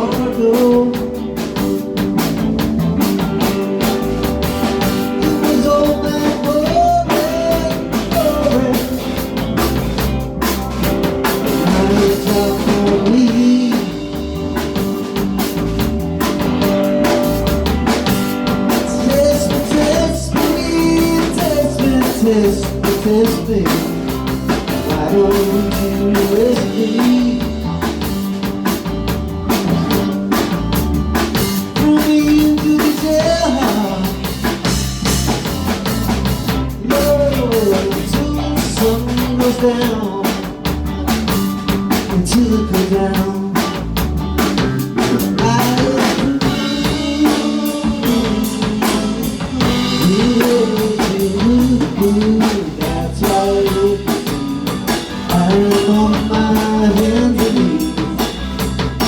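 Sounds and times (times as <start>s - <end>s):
drum kit beat: 0.0s - 59.0s
rock band playing live: 0.0s - 59.0s
lead guitar bending notes: 23.4s - 32.4s.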